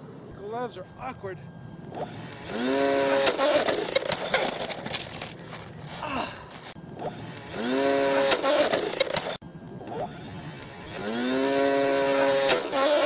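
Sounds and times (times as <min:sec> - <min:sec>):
electric motor and propeller whine: 0:00.0 - 0:13.0
rough crackling clatter: 0:03.2 - 0:06.8.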